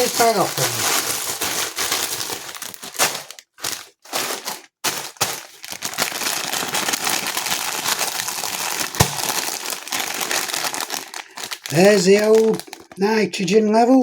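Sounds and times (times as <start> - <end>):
plastic packaging crinkling: 0.0 - 13.4
sharp knock: 9.0 - 9.4.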